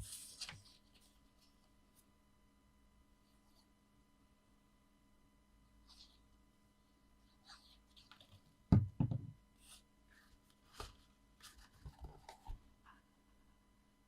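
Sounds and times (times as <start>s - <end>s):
paper rustling: 0.0s - 1.6s
knocks on craft table: 8.7s - 9.4s.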